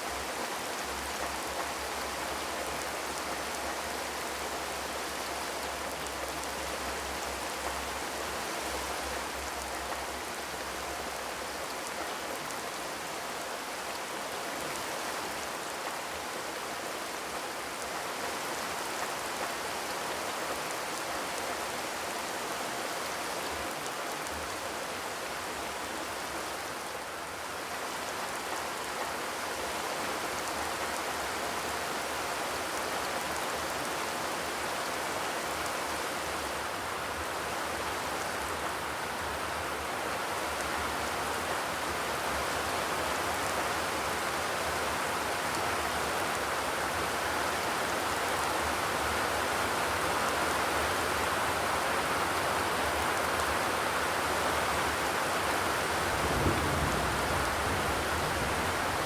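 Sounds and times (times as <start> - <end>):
rain drumming on a metal roof: 0.1 - 59.0.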